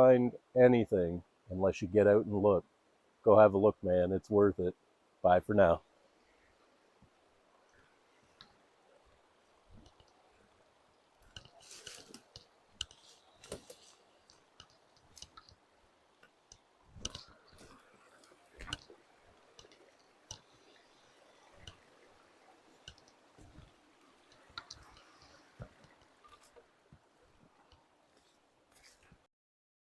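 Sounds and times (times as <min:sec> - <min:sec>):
faint irregular clicks: 0:05.6 - 0:29.3.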